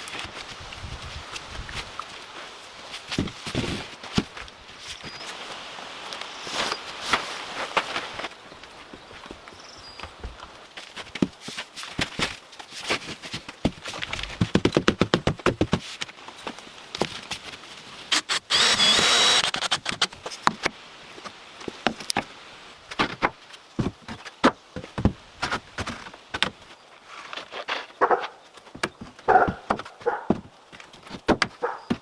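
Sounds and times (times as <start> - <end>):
power tool burst: 18.1 - 20.2.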